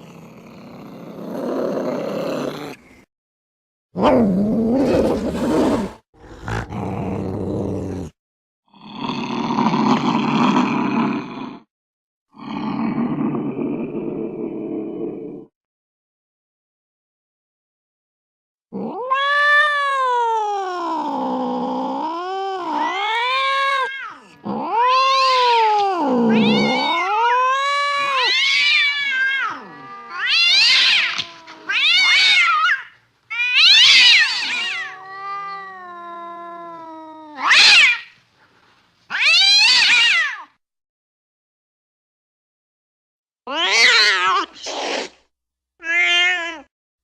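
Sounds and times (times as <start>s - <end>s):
cat yowling: 18.8s - 38.2s, 39.1s - 40.5s, 43.5s - 44.6s, 45.8s - 46.7s
cat meowing: 18.9s - 20.9s, 22.0s - 38.2s, 39.1s - 40.5s, 43.5s - 44.6s, 45.8s - 46.7s.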